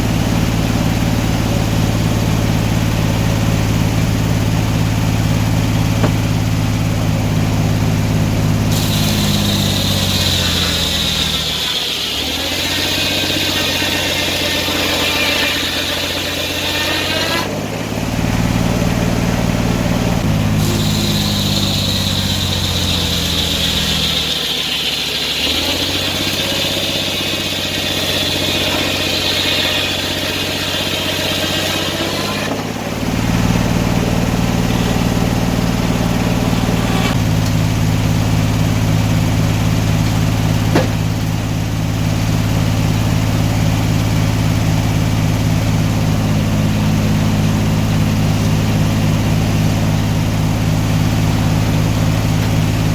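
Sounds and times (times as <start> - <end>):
sawmill engine running: 0.0 - 52.9
high thin whine: 8.5 - 17.7, 20.1 - 33.0.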